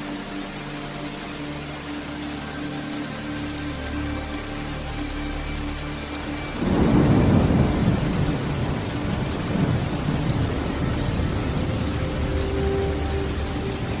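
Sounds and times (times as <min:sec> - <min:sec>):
steady rain: 0:00.0 - 0:14.0
thunder clap and rumble: 0:06.6 - 0:14.0.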